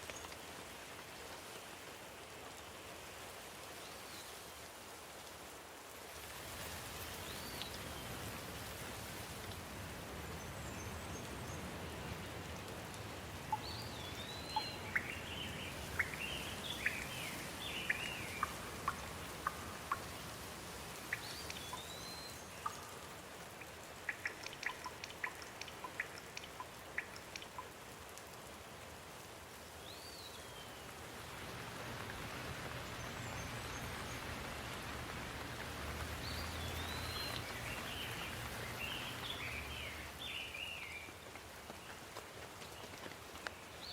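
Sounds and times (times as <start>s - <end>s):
steady rain falling: 0.0s - 43.9s
sharp close drips: 6.2s - 43.9s
bird chirping: 13.5s - 20.3s, 21.1s - 23.0s, 23.6s - 27.6s, 36.2s - 41.1s.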